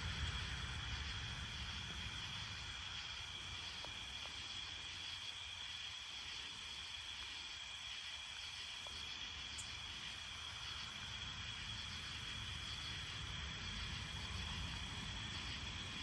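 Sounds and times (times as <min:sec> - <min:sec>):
faint low rumble: 0:00.0 - 0:04.5
insects trilling: 0:00.0 - 0:16.0.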